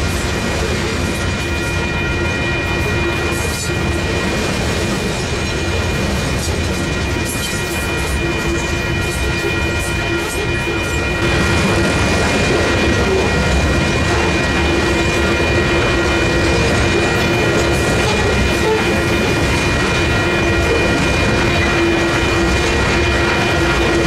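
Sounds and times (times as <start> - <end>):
steady ringing tones: 0.0 - 24.0
steel wheels on rails: 0.0 - 24.0.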